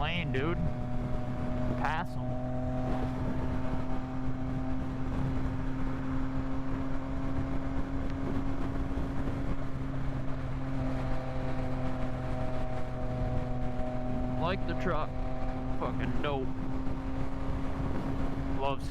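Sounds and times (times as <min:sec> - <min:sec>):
motorcycle engine cruising: 0:00.0 - 0:18.9
wind and road noise: 0:00.0 - 0:18.9.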